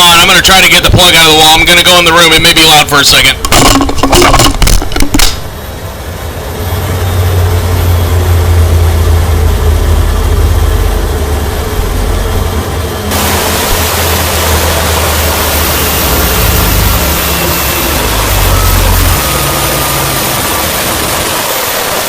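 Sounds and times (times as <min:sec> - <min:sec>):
machine noise with deep hum: 0:00.0 - 0:22.0
loud rushing hiss: 0:13.1 - 0:16.6.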